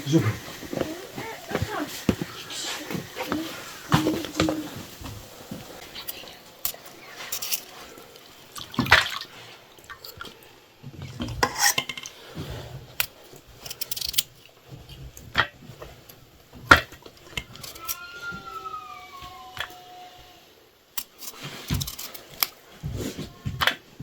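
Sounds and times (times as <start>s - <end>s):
dishes and utensils clinking: 5.6s - 9.2s, 11.0s - 12.2s, 21.0s - 22.6s.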